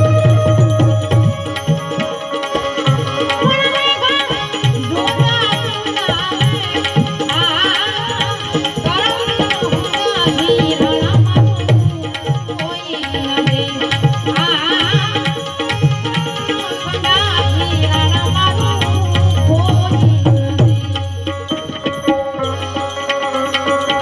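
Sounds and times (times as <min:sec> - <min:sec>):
ornamented melody line: 0:00.0 - 0:07.2, 0:15.9 - 0:24.0
tabla rhythm: 0:00.0 - 0:24.0.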